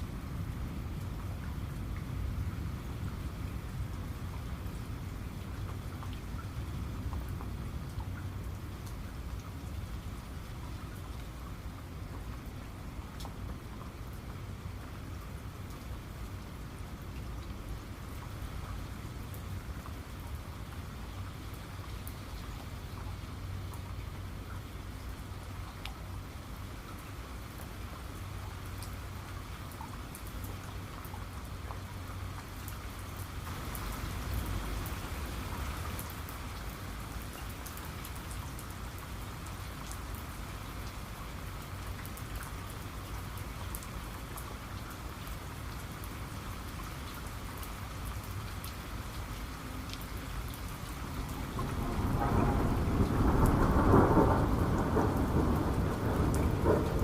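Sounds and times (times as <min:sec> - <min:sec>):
rain drops ticking: 0:00.0 - 0:57.0
steady rain: 0:00.0 - 0:57.0
thunder rumbling: 0:51.2 - 0:57.0.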